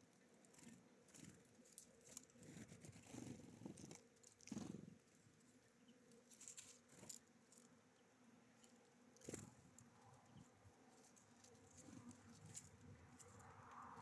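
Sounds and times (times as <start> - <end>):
small birds pecking and rustling: 0.0 - 14.0.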